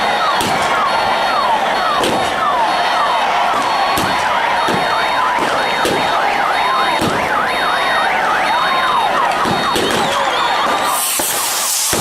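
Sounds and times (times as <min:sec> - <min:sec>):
electronic sirens yelping: 0:00.0 - 0:12.0
siren wailing: 0:00.0 - 0:12.0.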